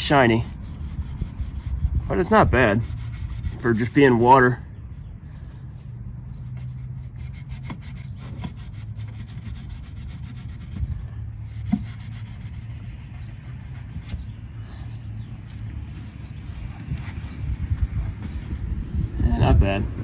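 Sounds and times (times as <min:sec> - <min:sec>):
wet sponge scrubbing metal: 0:00.0 - 0:04.5, 0:06.7 - 0:14.4.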